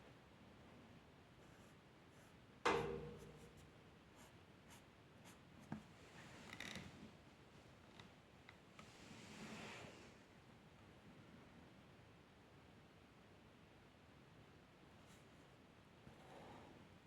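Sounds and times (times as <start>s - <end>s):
knock with short ring: 2.7s - 3.5s.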